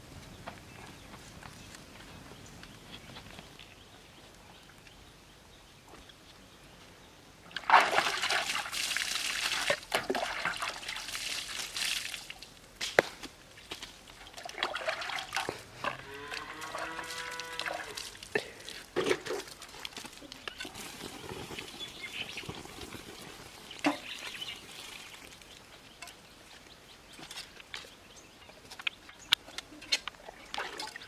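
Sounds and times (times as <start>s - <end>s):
water pouring and splashing: 7.5s - 13.0s, 13.7s - 26.1s, 30.2s - 31.0s.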